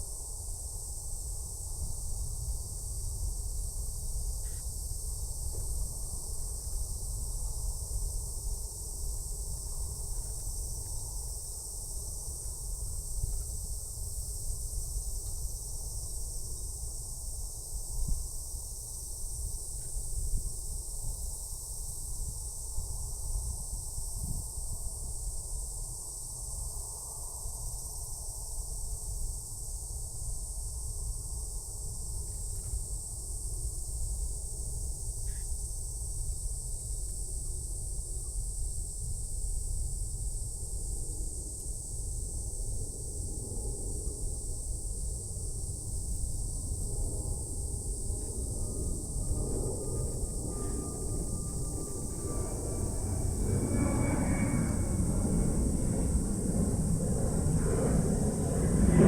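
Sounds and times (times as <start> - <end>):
high-pitched insect chorus: 0.0 - 59.0
low rumble: 47.8 - 59.0.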